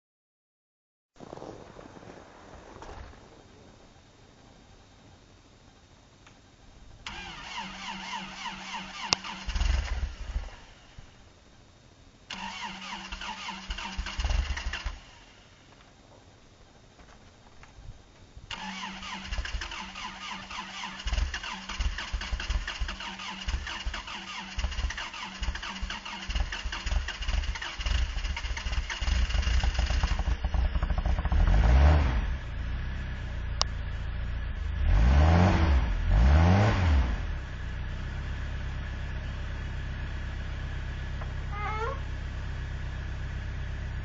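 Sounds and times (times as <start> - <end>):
starter cranking with a whine: 7.1 - 11.1, 12.3 - 15.4, 18.5 - 31.7
truck engine revving: 18.5 - 32.7, 34.6 - 41.6.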